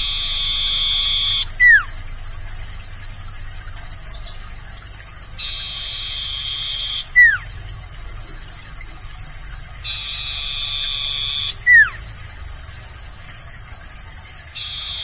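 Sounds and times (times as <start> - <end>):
bird singing whistle: 0.0 - 2.0, 5.4 - 7.6, 9.8 - 12.0, 14.6 - 15.0.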